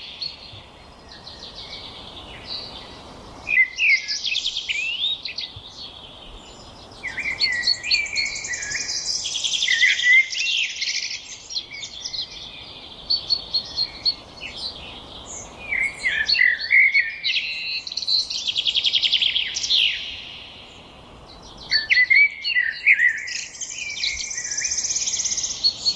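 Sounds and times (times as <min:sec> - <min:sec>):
songbirds singing: 0:00.0 - 0:25.9.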